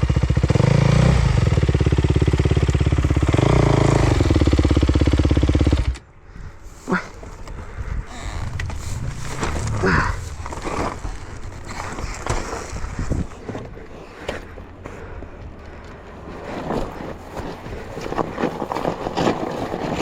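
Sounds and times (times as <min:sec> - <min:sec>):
motorcycle engine revving: 0:00.0 - 0:06.1, 0:08.1 - 0:13.6.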